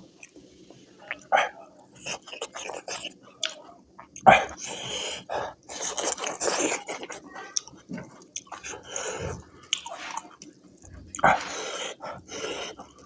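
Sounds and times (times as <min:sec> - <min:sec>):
chewing and biting food: 0:02.0 - 0:04.6, 0:05.7 - 0:13.0.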